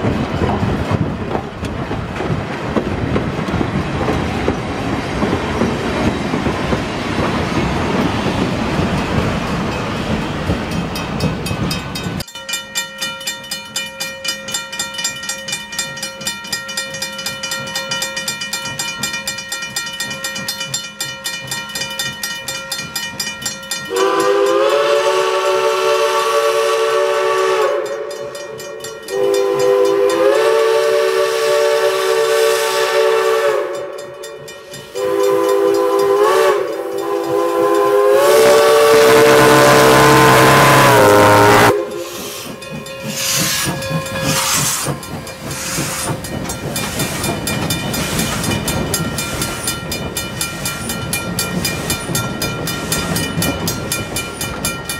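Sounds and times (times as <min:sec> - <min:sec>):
train running noise: 0:00.0 - 0:54.9
rhythmic clicking from track: 0:00.4 - 0:24.4, 0:41.7 - 0:54.9
steam locomotive chime whistle: 0:11.4 - 0:54.9.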